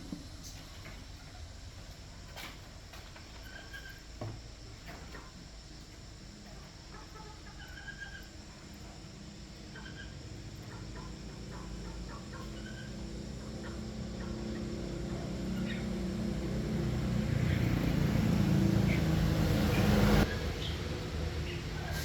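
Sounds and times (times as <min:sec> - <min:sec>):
bird calls: 0:00.0 - 0:22.0
chicken calls: 0:00.2 - 0:22.0
small engine running: 0:10.4 - 0:22.0.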